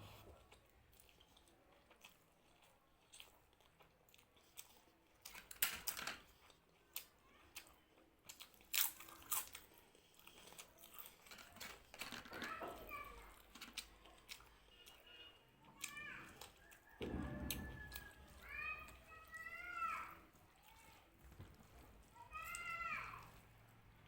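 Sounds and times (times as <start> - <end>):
person chewing: 0.0 - 5.4, 6.3 - 11.9, 13.3 - 18.2
crunchy bites: 8.2 - 11.2.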